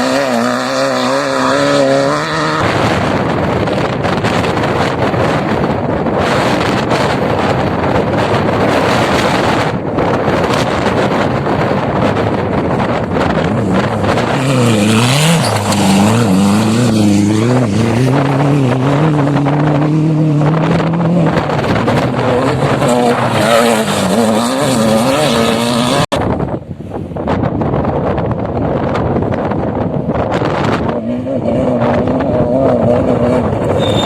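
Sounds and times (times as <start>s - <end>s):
off-road engine revving: 0.0s - 5.6s, 12.1s - 26.2s, 30.4s - 34.0s
wind noise on microphone: 0.0s - 34.0s.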